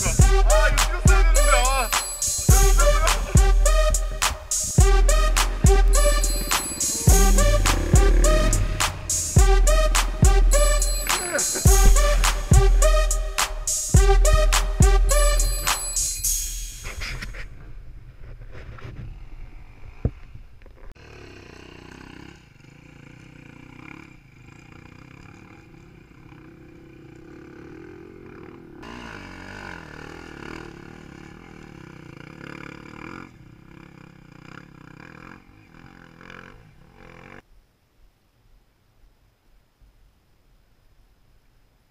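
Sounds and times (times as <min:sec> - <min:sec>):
dirt bike engine revving: 0:00.0 - 0:15.9, 0:21.0 - 0:37.4.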